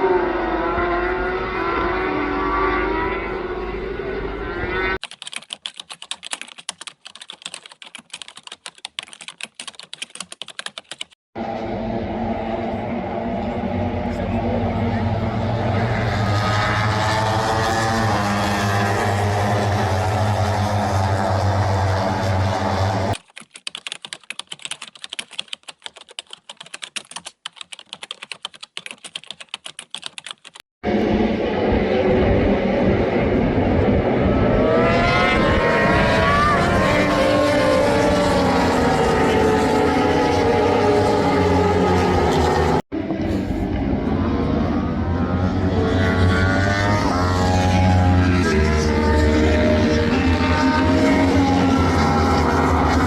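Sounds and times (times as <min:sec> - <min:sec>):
racing motorcycle engine: 0:00.0 - 0:05.0, 0:11.4 - 0:23.2, 0:30.8 - 0:53.0
fast irregular sharp clicks: 0:05.0 - 0:11.2, 0:23.2 - 0:30.6.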